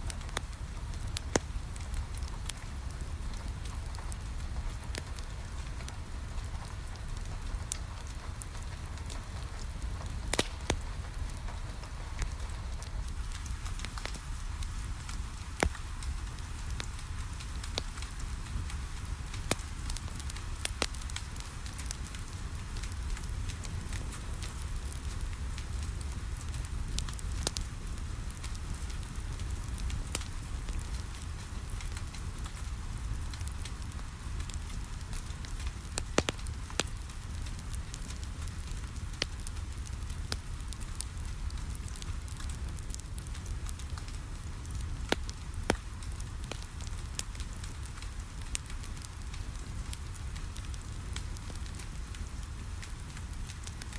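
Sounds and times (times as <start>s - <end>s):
rain hissing on a window: 0.0s - 53.9s
wood fire crackling and popping: 0.0s - 53.9s.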